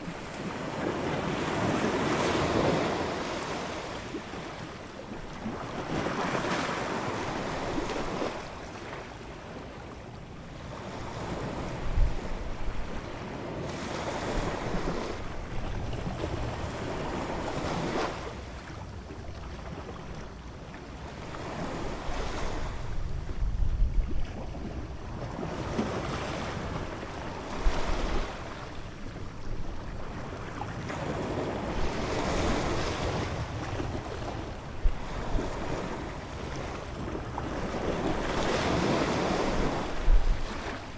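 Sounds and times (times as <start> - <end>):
wind buffeting microphone: 11.2 - 13.2, 21.7 - 40.9.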